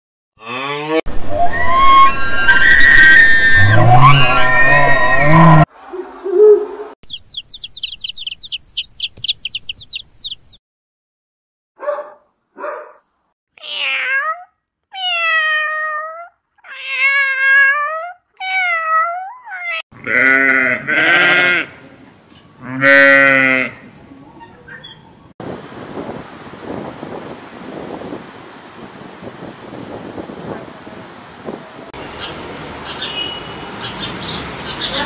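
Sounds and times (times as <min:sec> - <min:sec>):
duckling peeping: 0:07.0 - 0:10.6
cat meowing: 0:13.6 - 0:19.8
sheep bleating: 0:20.0 - 0:21.8, 0:22.6 - 0:23.8.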